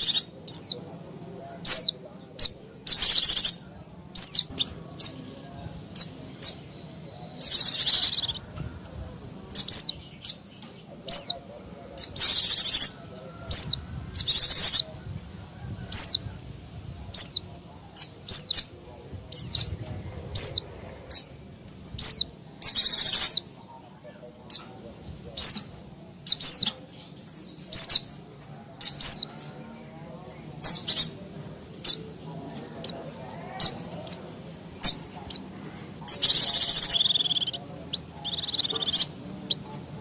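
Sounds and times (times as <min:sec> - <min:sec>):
white-eye bird chirps: 0:00.0 - 0:00.8, 0:01.6 - 0:03.6, 0:04.2 - 0:05.3, 0:05.9 - 0:08.4, 0:09.5 - 0:11.4, 0:12.0 - 0:16.2, 0:17.2 - 0:17.4, 0:18.0 - 0:18.7, 0:20.4 - 0:21.3, 0:22.0 - 0:23.7, 0:24.5 - 0:28.1, 0:28.8 - 0:29.5, 0:30.6 - 0:31.2, 0:34.8 - 0:35.5, 0:36.1 - 0:39.7
buzzy bird notes: 0:04.2 - 0:08.5, 0:33.6 - 0:39.7.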